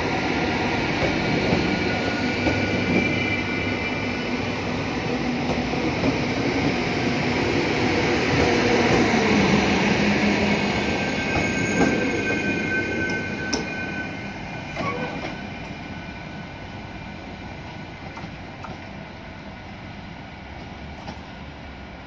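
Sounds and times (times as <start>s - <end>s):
train wheels rolling on rails: 0.0s - 22.0s
thin high squeal: 11.0s - 15.9s.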